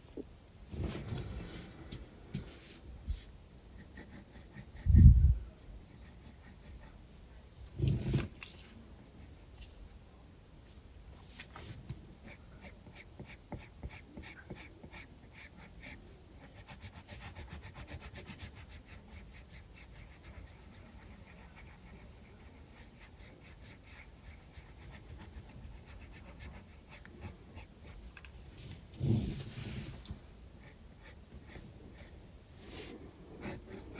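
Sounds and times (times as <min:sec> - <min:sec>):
pencil scratching on paper: 0:03.8 - 0:07.0, 0:11.2 - 0:28.1, 0:30.6 - 0:33.9.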